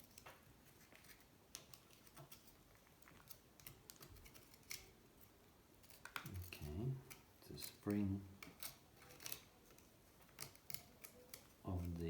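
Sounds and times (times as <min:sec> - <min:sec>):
small metal parts clicking: 0:05.9 - 0:12.0.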